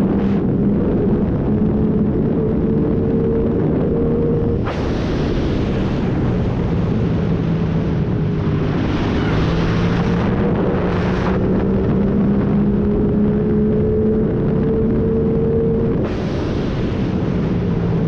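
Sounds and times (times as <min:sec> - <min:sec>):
loud rushing noise: 0:04.5 - 0:12.1, 0:15.9 - 0:18.0.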